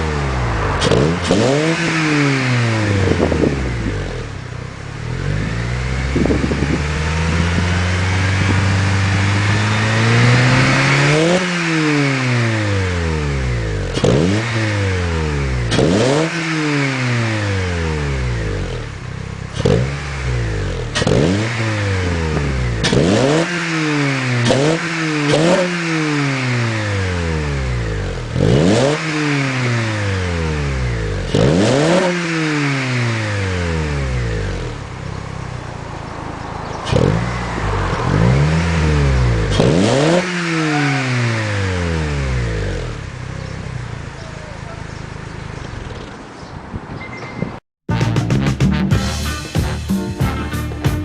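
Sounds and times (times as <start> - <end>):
car engine revving: 0.0 - 46.5.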